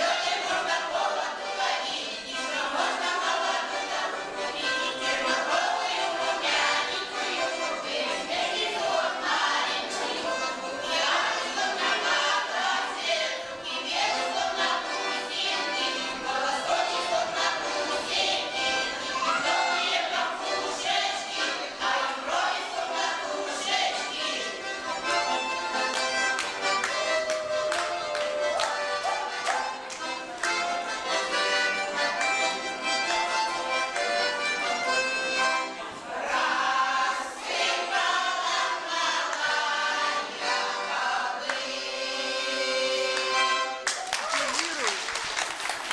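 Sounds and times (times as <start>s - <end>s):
folk choir singing: 0.0s - 43.8s
accordion playing: 0.0s - 43.9s.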